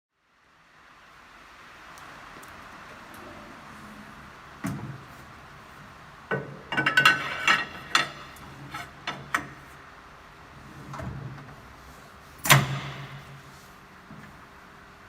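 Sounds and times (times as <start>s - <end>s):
sharp metallic clanks and rattles: 6.4s - 9.5s.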